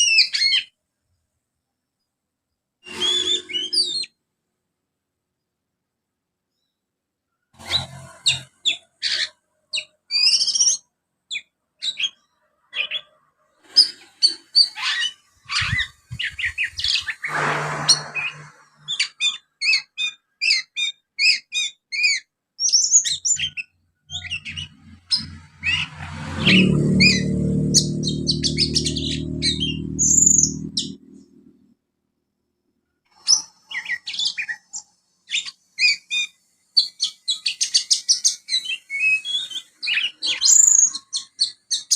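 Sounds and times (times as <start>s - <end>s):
bird chattering chirps and trills: 7.6s - 27.2s, 27.8s - 31.3s.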